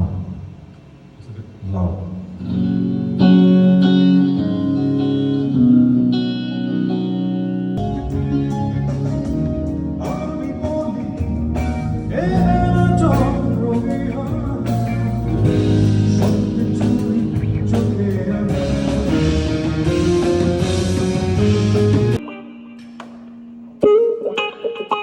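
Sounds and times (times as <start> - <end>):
electric guitar: 2.0 - 25.0
live rock band playing: 2.5 - 25.0
person singing: 7.8 - 22.7.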